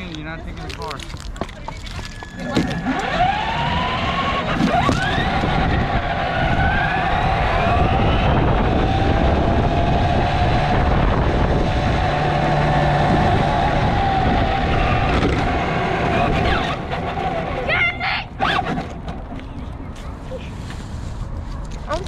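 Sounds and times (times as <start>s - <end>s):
electric motor whine: 2.1s - 17.5s.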